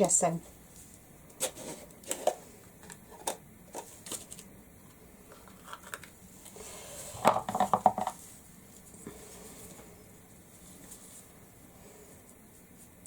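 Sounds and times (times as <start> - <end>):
hard items clinking and knocking: 7.2 - 8.2.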